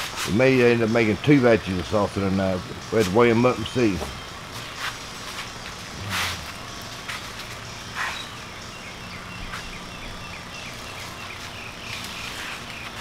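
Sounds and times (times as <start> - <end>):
rustle of plants handled: 11.0 - 13.0.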